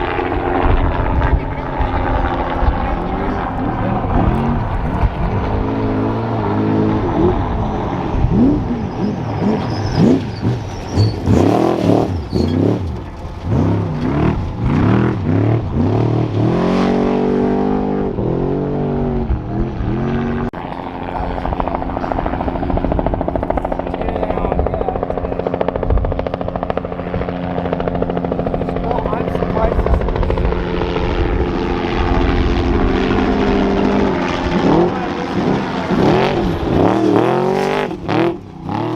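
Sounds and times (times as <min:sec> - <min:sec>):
helicopter rotor drone: 0:00.0 - 0:38.9
truck engine revving hard: 0:02.9 - 0:20.6, 0:31.2 - 0:38.9.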